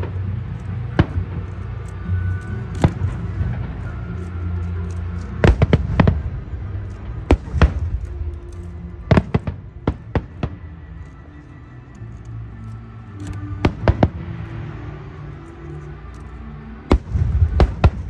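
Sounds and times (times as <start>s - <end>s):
low rumble: 0.0s - 18.0s
fireworks bangs: 5.3s - 8.0s, 9.0s - 10.7s, 13.5s - 14.4s, 16.9s - 18.0s.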